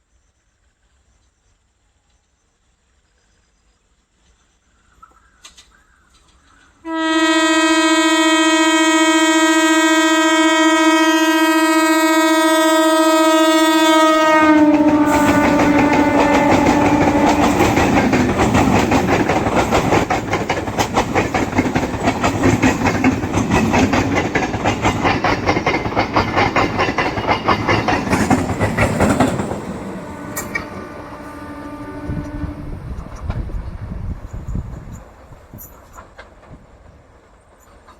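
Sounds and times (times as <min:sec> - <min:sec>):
freight train rushing by: 0:05.5 - 0:37.9
train horn: 0:06.8 - 0:19.1, 0:28.3 - 0:33.2
wheels clacking over rail joints: 0:14.4 - 0:31.1, 0:32.9 - 0:37.9.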